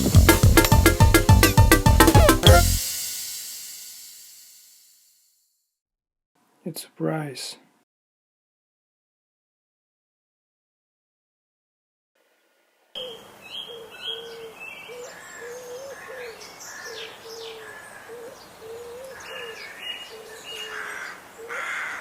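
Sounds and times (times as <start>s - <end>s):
birds chirping: 13.0s - 21.6s
bird cooing: 13.0s - 21.7s.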